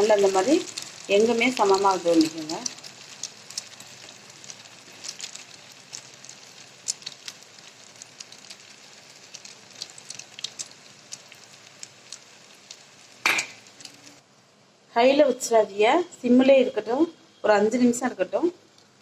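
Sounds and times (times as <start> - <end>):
batter sizzling in hot oil: 0.0 - 14.2
oil crackling and popping: 0.0 - 14.2, 18.6 - 19.0.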